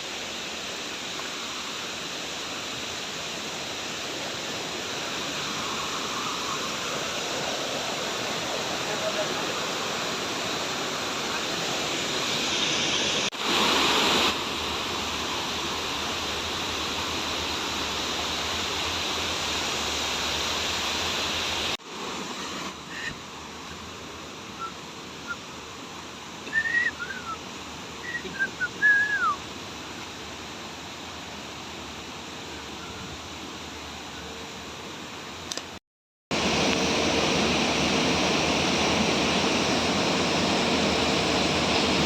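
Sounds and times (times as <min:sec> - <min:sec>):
falling water rushing: 0:00.0 - 0:35.4, 0:36.3 - 0:42.0
bird chirps and whistles: 0:26.5 - 0:27.4, 0:28.0 - 0:29.4.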